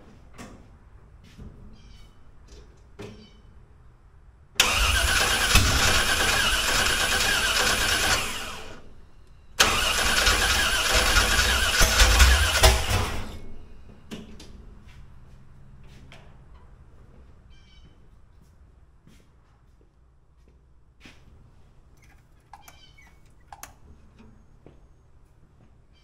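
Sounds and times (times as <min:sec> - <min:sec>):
uneven engine thumps: 0:04.6 - 0:06.5
engine cranking by starter: 0:04.6 - 0:08.9, 0:09.6 - 0:13.6.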